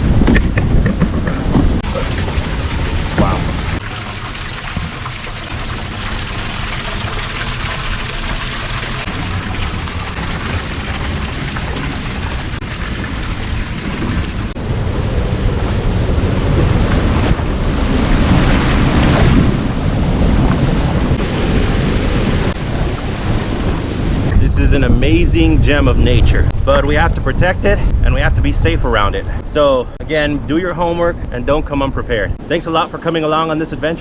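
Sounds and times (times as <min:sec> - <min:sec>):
waterfall rushing: 0:01.4 - 0:16.3.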